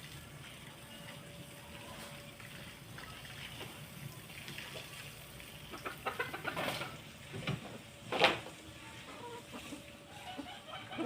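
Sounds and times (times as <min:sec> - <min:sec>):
chickens clucking: 0:05.5 - 0:11.0.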